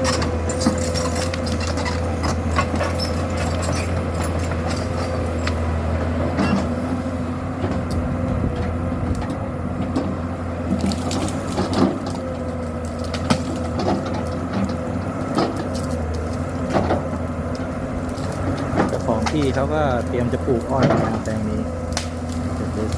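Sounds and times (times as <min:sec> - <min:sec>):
excavator diesel engine: 0:00.0 - 0:22.9
wood cracking and knocking: 0:10.7 - 0:22.9.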